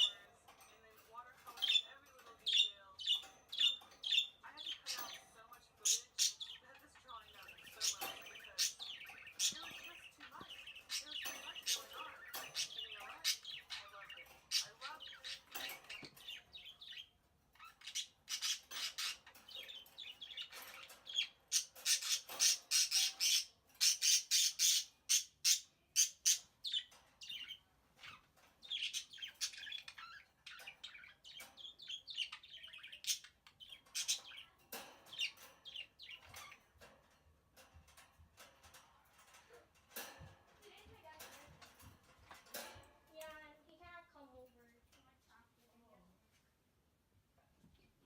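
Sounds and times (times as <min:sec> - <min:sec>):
pet birds calling: 0:00.0 - 0:44.0.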